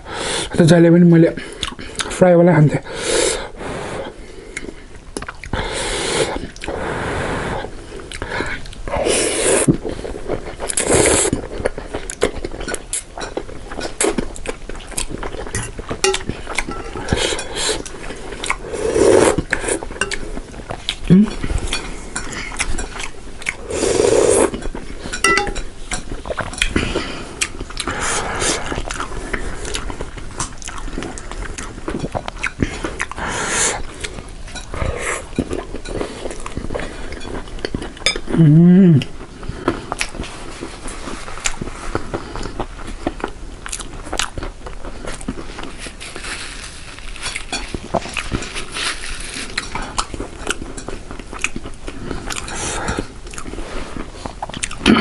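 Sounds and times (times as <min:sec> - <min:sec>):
food chewing: 0:04.0 - 0:05.6, 0:07.7 - 0:55.0
noodles being slurped: 0:05.7 - 0:11.8, 0:16.4 - 0:20.2, 0:23.6 - 0:25.2
cutlery scraping a bowl: 0:15.5 - 0:17.9, 0:24.4 - 0:26.7.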